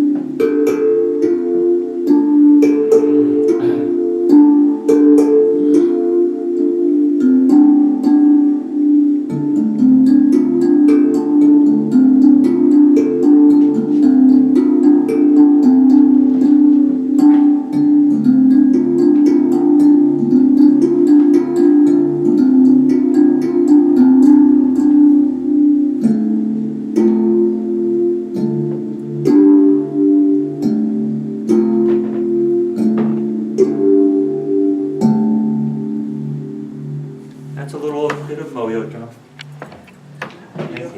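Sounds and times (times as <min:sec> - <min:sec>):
steel tongue drum melody: 0:00.0 - 0:40.9
low repeating drum pattern: 0:02.1 - 0:05.9.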